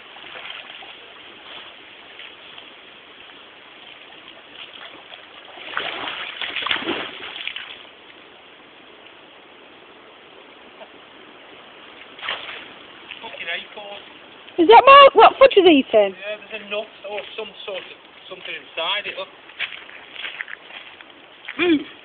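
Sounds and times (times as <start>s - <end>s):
water trickling: 0.0s - 9.2s, 11.6s - 22.0s
dog splashing in water: 3.8s - 7.8s.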